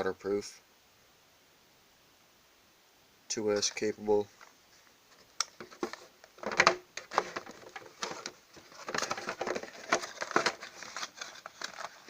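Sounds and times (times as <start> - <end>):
packaging rustling: 4.3 - 12.0.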